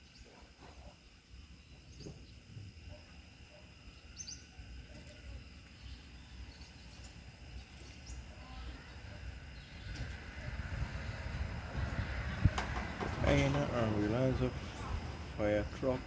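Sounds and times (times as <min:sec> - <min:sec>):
faint insect drone: 0:00.0 - 0:16.0
bird chirps: 0:04.0 - 0:04.6
wind rumbling on microphone: 0:09.3 - 0:15.8.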